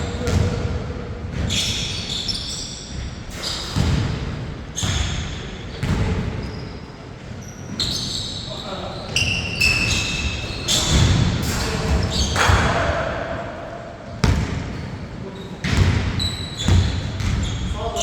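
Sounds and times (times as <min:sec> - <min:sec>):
basketball bouncing on court: 0:00.1 - 0:01.8, 0:03.8 - 0:06.6, 0:14.2 - 0:14.9, 0:15.6 - 0:17.8
sneaker squeaks: 0:01.3 - 0:04.2, 0:04.8 - 0:12.8, 0:14.2 - 0:18.0.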